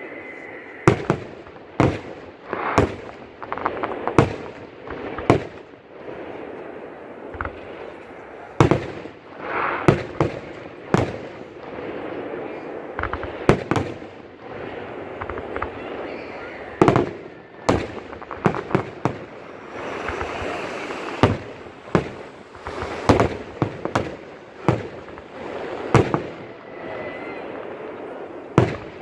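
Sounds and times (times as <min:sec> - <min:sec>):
firework shells booming: 0:00.8 - 0:29.0
crackling firework pops: 0:00.9 - 0:05.7, 0:07.3 - 0:12.0, 0:12.6 - 0:29.0.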